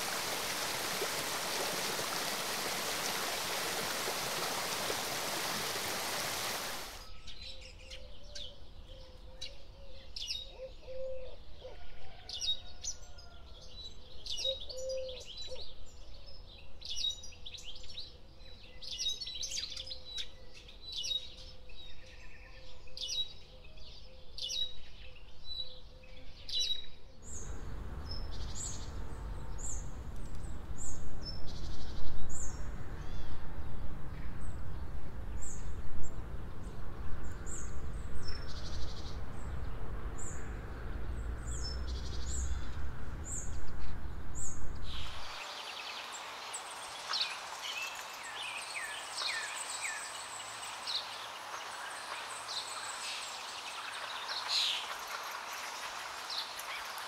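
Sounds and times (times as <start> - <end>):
running water rushing: 0.0 - 7.0, 44.6 - 57.0
tropical birds chirping: 0.0 - 57.0
low rumble: 33.7 - 45.2.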